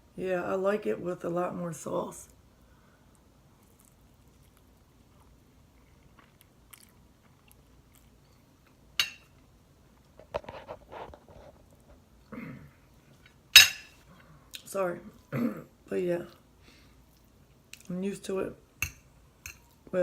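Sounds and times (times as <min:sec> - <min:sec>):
person chewing food: 0:03.1 - 0:08.9, 0:16.3 - 0:17.9.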